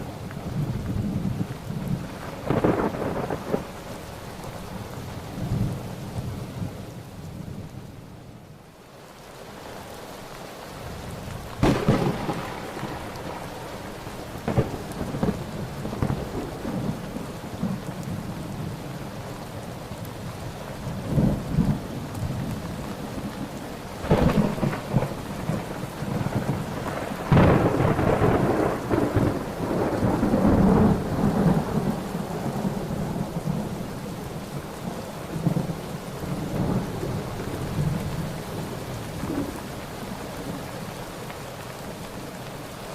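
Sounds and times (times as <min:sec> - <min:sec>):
rolling thunder rumbles: 0:00.0 - 0:07.8, 0:11.0 - 0:19.2, 0:21.0 - 0:40.7
steady rain: 0:00.0 - 0:42.9
thunder cracks: 0:02.2 - 0:03.7, 0:11.6 - 0:17.8, 0:24.0 - 0:33.6.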